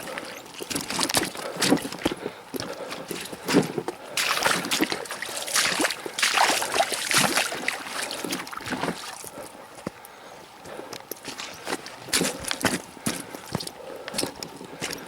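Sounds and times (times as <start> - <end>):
water splashing and sloshing: 0.0 - 9.6.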